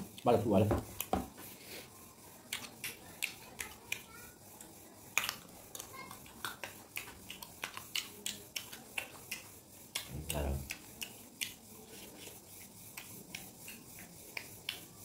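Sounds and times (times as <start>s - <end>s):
crunchy chewing: 5.1s - 12.4s
wet mouth clicks: 5.2s - 11.6s.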